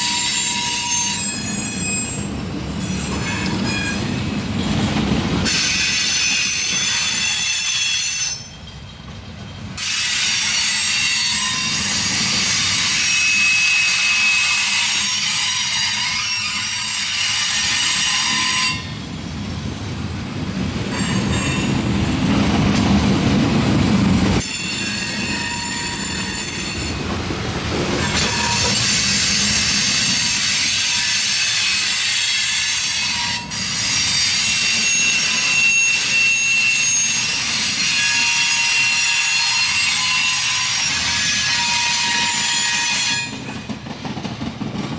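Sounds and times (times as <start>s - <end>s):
high-pitched metallic wheel squeal: 0.0s - 4.3s, 5.5s - 8.9s, 9.8s - 19.0s, 24.4s - 27.0s, 28.0s - 43.6s.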